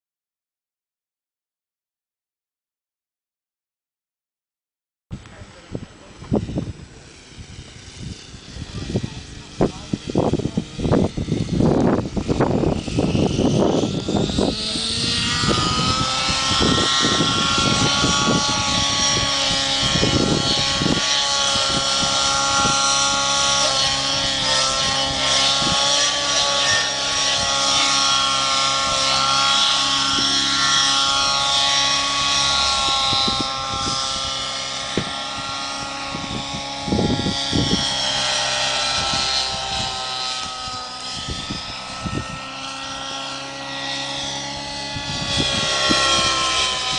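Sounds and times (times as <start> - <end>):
rc helicopter engine and rotors: 5.1 - 46.9
wind buffeting microphone: 5.1 - 46.9.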